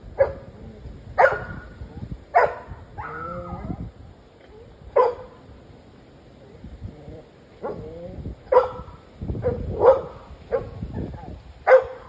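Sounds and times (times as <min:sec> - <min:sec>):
wind rumble on microphone: 0:00.0 - 0:12.0
dog barking: 0:00.2 - 0:00.5, 0:01.2 - 0:01.6, 0:02.4 - 0:03.2, 0:05.0 - 0:05.4, 0:08.5 - 0:12.0.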